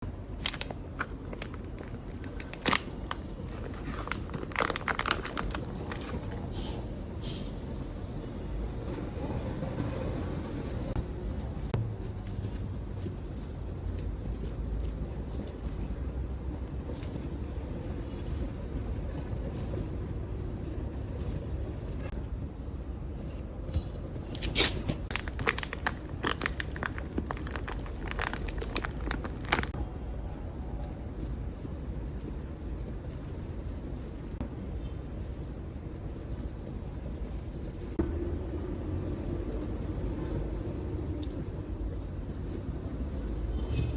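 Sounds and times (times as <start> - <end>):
low rumble of handling noise: 0.0 - 43.9
squishy toy being squeezed: 24.4 - 29.8
crackling crunching clicks: 25.1 - 29.8.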